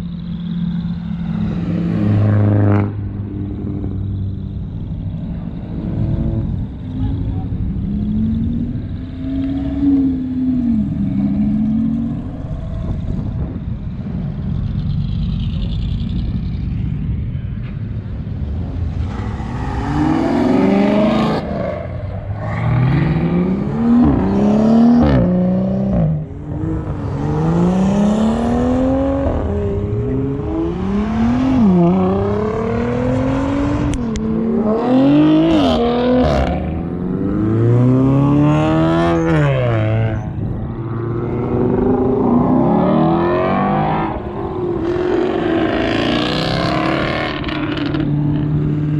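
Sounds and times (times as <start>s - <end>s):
car engine revving: 18.1s - 48.9s.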